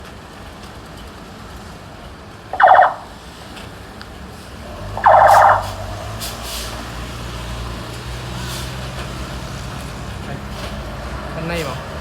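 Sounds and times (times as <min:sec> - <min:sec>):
low engine hum: 0:02.6 - 0:12.0.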